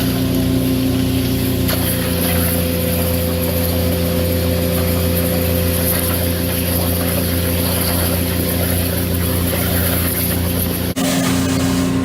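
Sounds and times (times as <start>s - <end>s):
engine hum: 0.0s - 12.0s.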